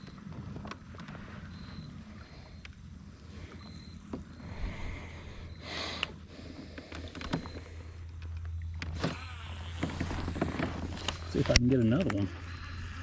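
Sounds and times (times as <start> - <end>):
small electric motor humming: 8.8 - 13.0.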